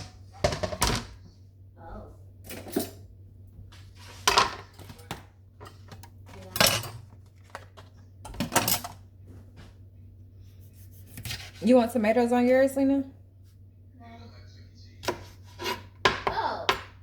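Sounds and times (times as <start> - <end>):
dishes and utensils clattering: 0.0 - 1.2, 2.4 - 3.0, 4.1 - 9.0.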